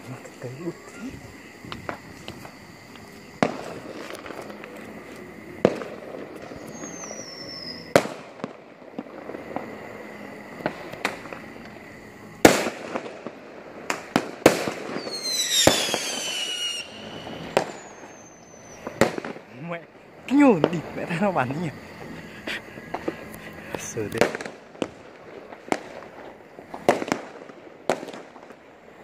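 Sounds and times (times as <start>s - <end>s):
fireworks bangs: 0.0s - 29.0s
fireworks crackle: 0.0s - 29.0s
fireworks whistle falling in pitch: 6.5s - 8.2s, 14.9s - 19.0s.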